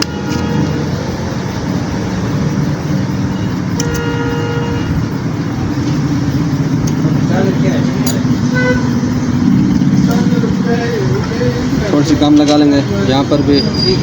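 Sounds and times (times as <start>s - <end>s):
vehicle horn: 0.0s - 1.0s, 3.2s - 5.2s, 8.5s - 9.2s
road traffic: 0.0s - 14.0s.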